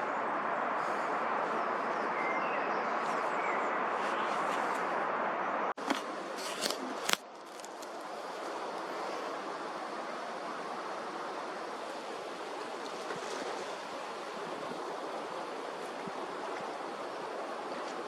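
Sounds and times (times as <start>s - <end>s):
steady rushing noise: 7.2s - 18.0s.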